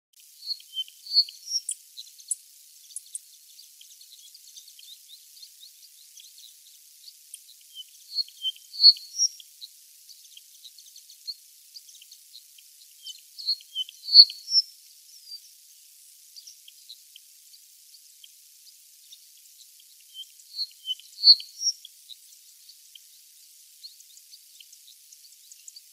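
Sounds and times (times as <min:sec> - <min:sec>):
songbird chirping: 0:00.2 - 0:25.9
faint high ticks: 0:00.4 - 0:15.0.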